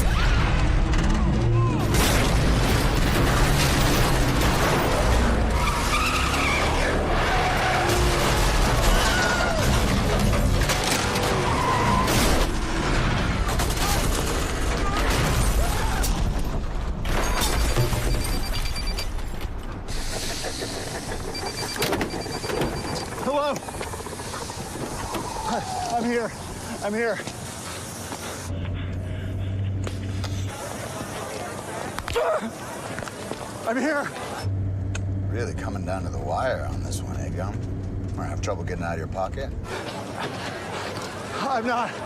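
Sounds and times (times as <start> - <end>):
tyres squealing: 5.5 - 8.0
high beeping: 17.6 - 19.2.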